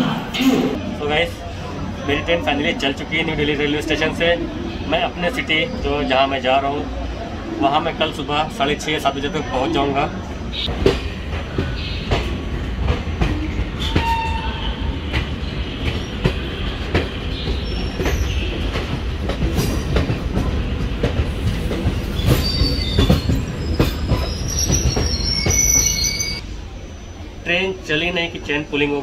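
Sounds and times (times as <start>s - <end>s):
train rumble: 10.1s - 29.0s
wheel and brake squeals: 13.8s - 14.9s, 17.3s - 18.6s, 22.1s - 26.4s.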